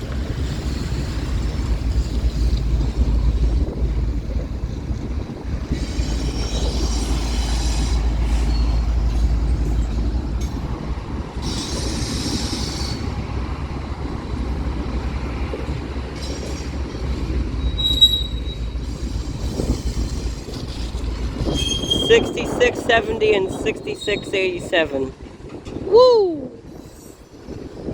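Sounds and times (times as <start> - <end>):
train wheels rumbling on rail: 0.0 - 26.0, 26.6 - 27.9
high wheel squeals: 17.6 - 20.3, 21.4 - 22.2.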